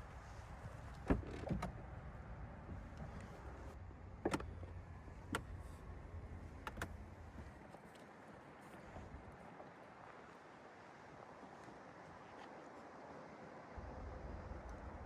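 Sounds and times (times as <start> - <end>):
low rumble inside car cabin: 0.0 - 9.5, 13.7 - 15.0.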